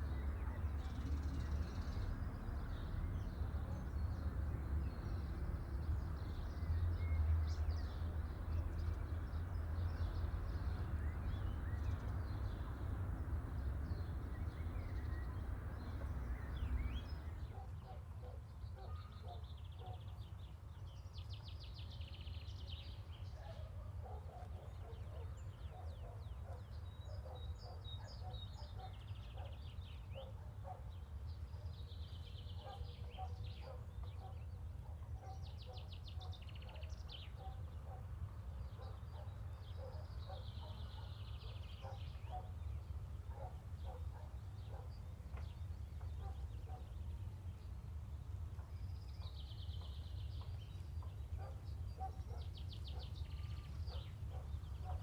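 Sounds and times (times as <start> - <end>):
steady low rumble: 0.0 - 17.6.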